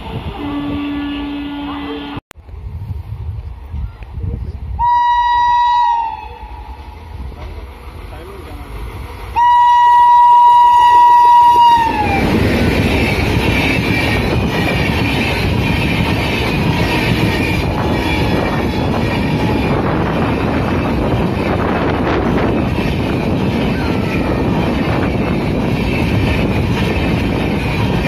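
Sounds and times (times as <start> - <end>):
train coaches rumbling past: 0.0 - 28.0
locomotive horn chord: 0.3 - 2.2, 9.4 - 12.2.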